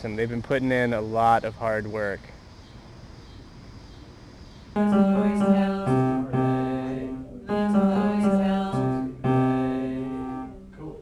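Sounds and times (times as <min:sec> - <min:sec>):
guitar strumming chords: 0:04.8 - 0:10.7.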